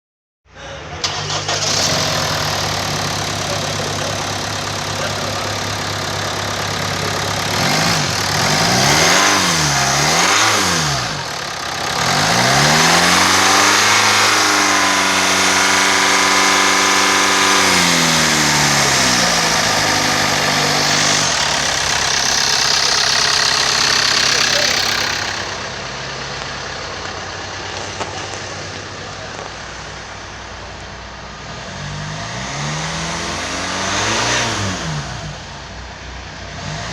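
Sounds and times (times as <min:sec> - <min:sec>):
diesel engine idling and revving: 0:00.6 - 0:36.9.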